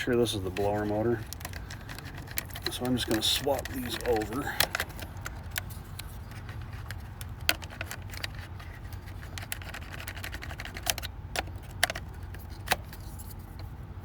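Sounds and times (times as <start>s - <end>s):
plastic relays clicking: 0.0s - 12.9s
steady low hum: 0.0s - 14.0s.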